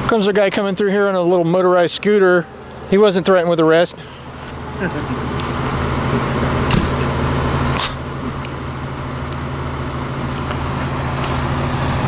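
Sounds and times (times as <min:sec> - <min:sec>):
vehicle engine idling: 0:00.0 - 0:12.0
sharp click: 0:06.7 - 0:07.0.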